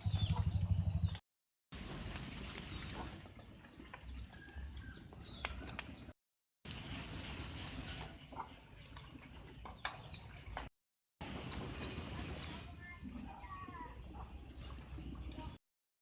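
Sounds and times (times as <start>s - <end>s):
birds chirping: 0.0s - 1.2s, 2.0s - 15.6s.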